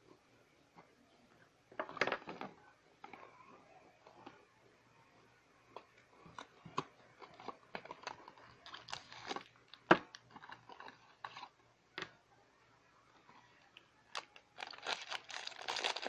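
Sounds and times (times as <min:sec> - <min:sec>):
packaging crinkling and rustling: 0:06.3 - 0:11.5, 0:14.1 - 0:16.0.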